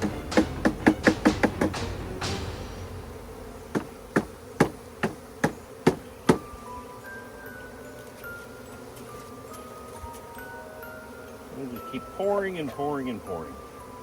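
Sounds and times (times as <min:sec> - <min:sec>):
knocks on wooden box: 0:00.0 - 0:02.9, 0:03.7 - 0:06.4
bees buzzing: 0:00.0 - 0:14.0.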